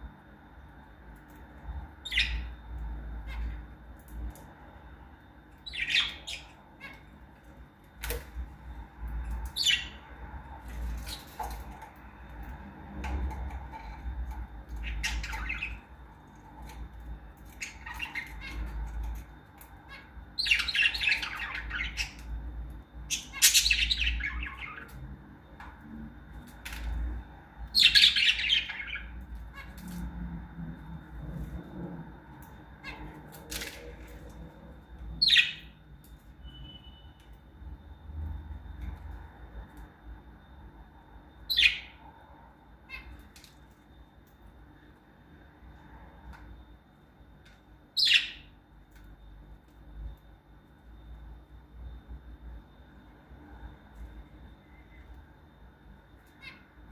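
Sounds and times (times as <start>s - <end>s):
lovebirds squawking and chirping: 2.0s - 2.6s, 5.6s - 7.1s, 9.2s - 10.1s, 14.7s - 16.0s, 17.4s - 19.2s, 19.8s - 22.3s, 23.1s - 25.0s, 27.7s - 30.0s, 35.2s - 35.7s, 41.5s - 42.0s, 48.0s - 48.5s.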